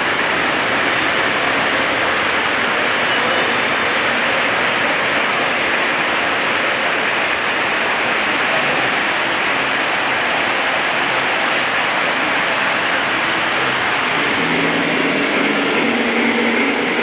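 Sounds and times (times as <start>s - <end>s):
model trains running on track: 0.0s - 17.0s.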